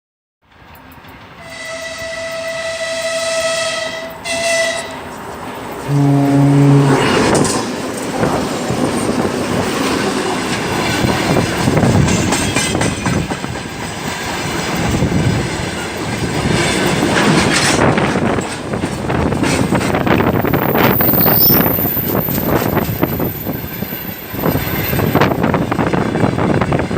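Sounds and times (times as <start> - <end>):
freight train rolling past: 0.5 - 26.9
wheels clattering over rails: 7.0 - 26.8.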